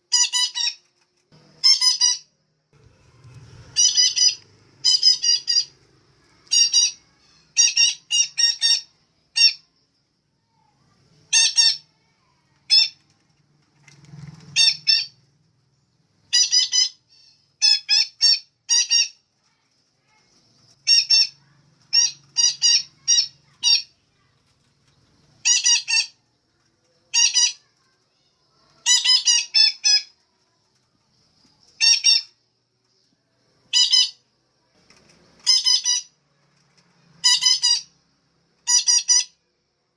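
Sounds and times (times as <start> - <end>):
parakeet squawking: 0.1 - 0.8, 1.6 - 2.3, 3.7 - 5.8, 6.4 - 9.6, 11.3 - 11.9, 14.6 - 15.2, 16.3 - 19.2, 20.8 - 24.0, 25.4 - 26.2, 27.1 - 27.8, 28.8 - 30.1, 33.7 - 34.2, 35.4 - 36.1, 37.2 - 37.9, 38.7 - 39.4.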